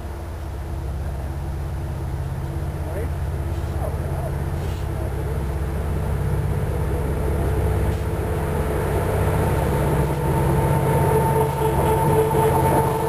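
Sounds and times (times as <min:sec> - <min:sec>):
diesel locomotive engine rumble: 0:00.0 - 0:13.0
steady high tone: 0:03.8 - 0:13.0.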